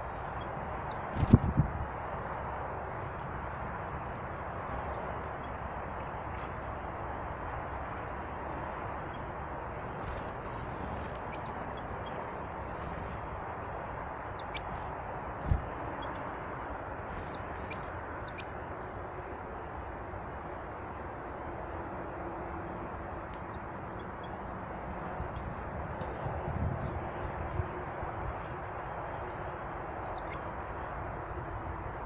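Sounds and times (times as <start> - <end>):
small birds chirping: 0.0 - 1.8, 4.6 - 7.2, 8.0 - 19.1, 23.4 - 32.0
steady rushing noise: 0.0 - 32.0.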